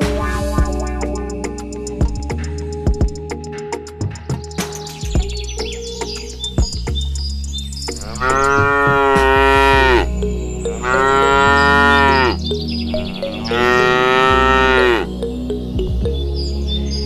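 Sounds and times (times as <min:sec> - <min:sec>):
cow mooing: 0:08.0 - 0:10.1, 0:10.8 - 0:12.4, 0:13.4 - 0:15.1.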